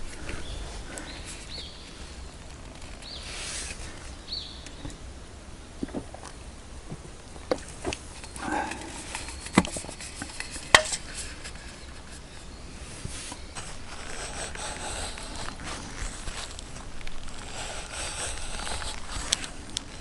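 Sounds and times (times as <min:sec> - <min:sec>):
light rustling: 0:05.8 - 0:20.0.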